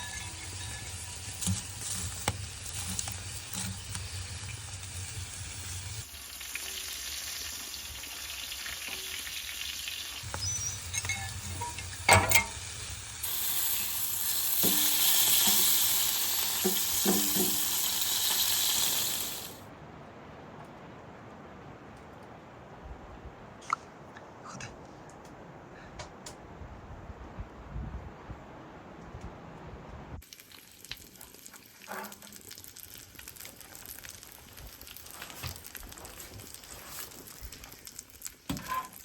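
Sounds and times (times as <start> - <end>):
food sizzling in a pan: 0.0 - 19.6, 30.2 - 39.0.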